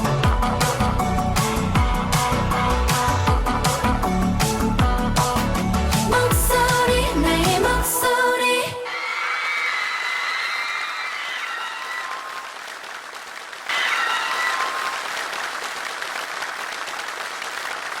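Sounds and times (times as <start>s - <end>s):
audience applauding and cheering: 8.9s - 18.0s.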